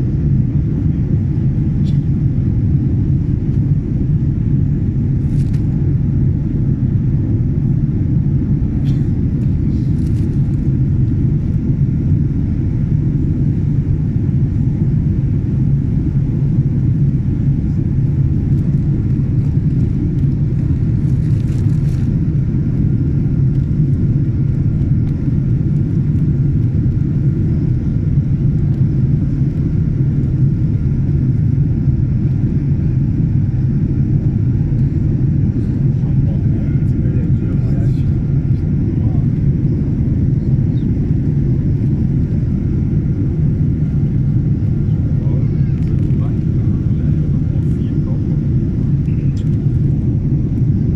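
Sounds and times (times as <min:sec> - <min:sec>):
faint constant whine: 0:00.0 - 0:50.9
jet cabin engine rumble: 0:00.0 - 0:50.9.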